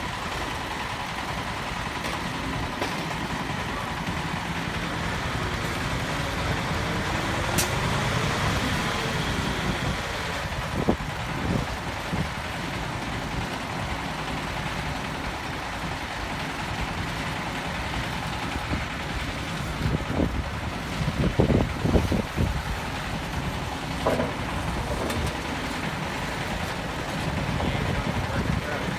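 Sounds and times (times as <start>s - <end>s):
truck engine running: 0.0s - 28.9s
short knocks: 23.9s - 25.9s.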